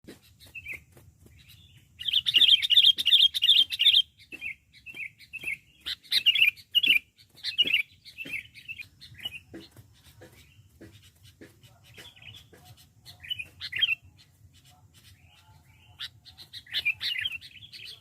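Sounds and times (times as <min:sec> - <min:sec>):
bird chattering call: 0:14.6 - 0:18.0.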